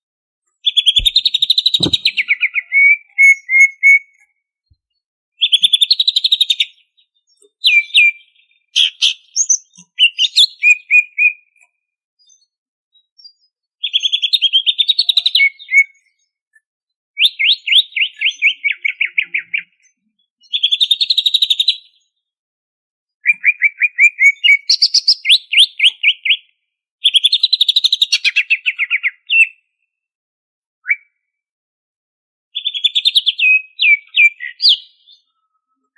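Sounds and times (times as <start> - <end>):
bird singing fast repeated notes: 0.6 - 4.0.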